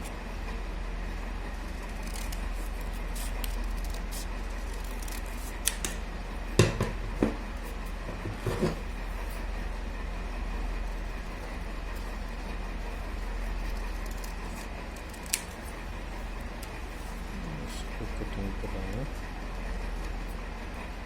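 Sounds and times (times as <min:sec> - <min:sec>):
scissors cutting paper: 0:01.7 - 0:06.0, 0:13.2 - 0:17.9.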